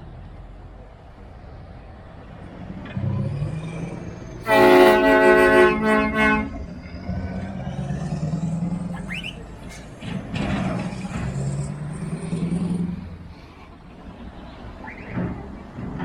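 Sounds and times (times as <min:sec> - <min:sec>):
heavy trucks pulling away: 0:00.0 - 0:16.0
short rising squeal: 0:06.6 - 0:10.0, 0:14.8 - 0:15.6.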